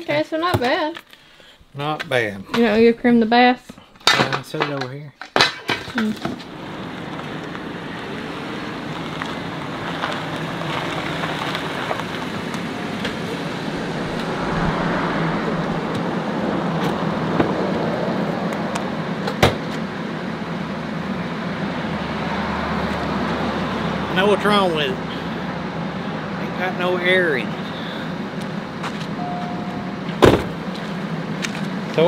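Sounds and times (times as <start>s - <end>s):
car engine idling: 6.1s - 32.0s.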